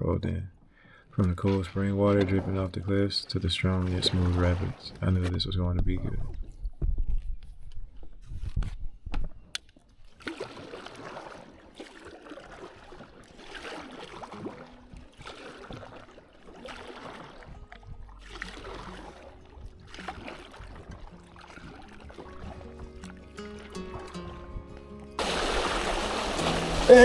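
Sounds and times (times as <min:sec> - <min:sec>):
kayak paddles splashing: 0:00.8 - 0:05.4, 0:09.7 - 0:27.0
running water: 0:01.2 - 0:05.3, 0:10.2 - 0:27.0
faint music: 0:16.7 - 0:27.0.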